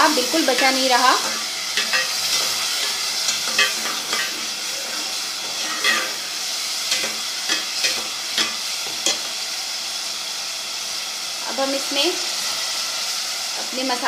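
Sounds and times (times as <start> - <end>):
meat sizzling in a pot: 0.0 - 14.0
spoon scraping and knocking pot: 0.6 - 6.2.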